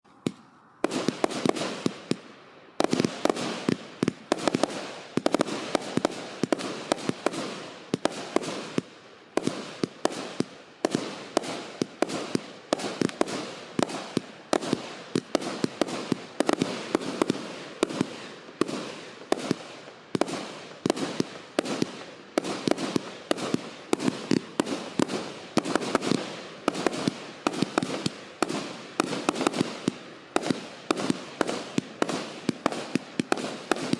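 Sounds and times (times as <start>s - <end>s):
fireworks bangs and crackling: 0.1s - 33.9s.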